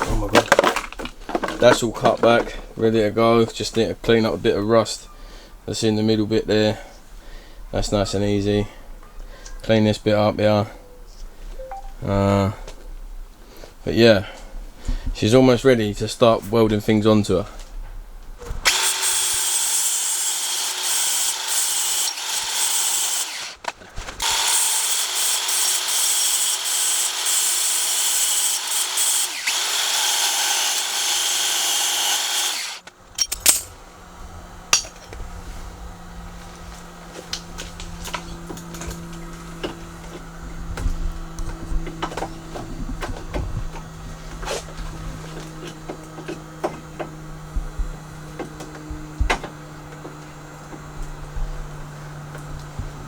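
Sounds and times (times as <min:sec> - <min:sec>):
angle grinder on steel: 0:18.6 - 0:33.8.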